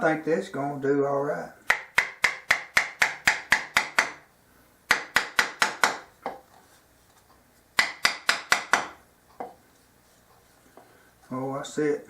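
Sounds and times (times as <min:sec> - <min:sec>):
putty knife tapping wood: 0:04.9 - 0:06.4, 0:07.8 - 0:09.6.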